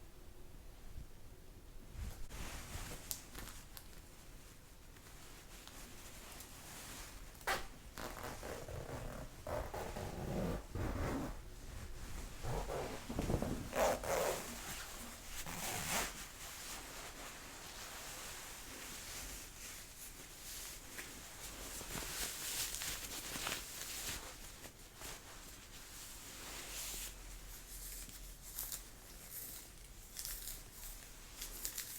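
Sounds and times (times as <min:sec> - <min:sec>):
jacket fabric rustling: 0:01.9 - 0:31.9.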